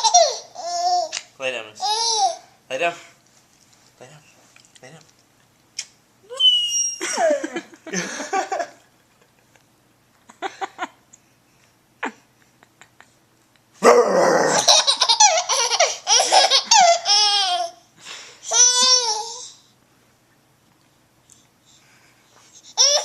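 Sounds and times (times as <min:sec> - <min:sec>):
baby laughing hysterically: 0:00.0 - 0:01.2, 0:14.6 - 0:17.8, 0:22.8 - 0:23.0.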